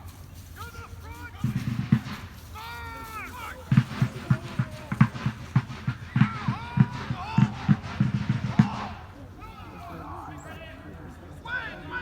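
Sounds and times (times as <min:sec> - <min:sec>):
low dull thumps: 0:03.6 - 0:09.2.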